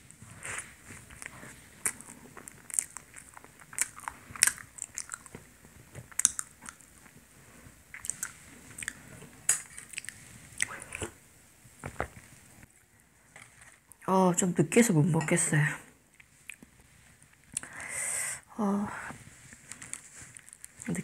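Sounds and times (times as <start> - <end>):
crisp pastry crunches: 1.0 - 7.2, 19.7 - 21.0.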